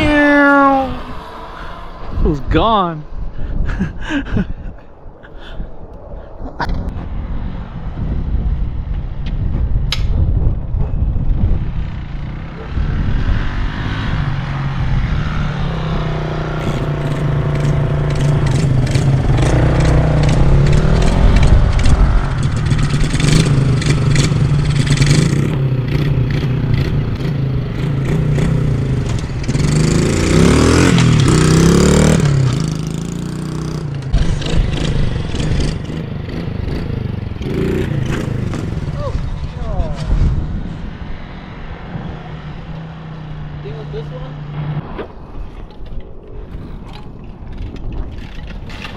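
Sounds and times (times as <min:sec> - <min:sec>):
mini-bike engine revving: 0:00.0 - 0:02.3, 0:12.0 - 0:40.2.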